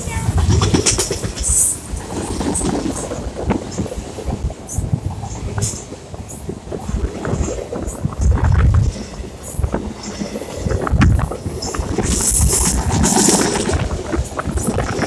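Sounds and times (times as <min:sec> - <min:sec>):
train wheels rumbling on rail: 0:00.0 - 0:15.0
wind buffeting microphone: 0:00.0 - 0:15.0.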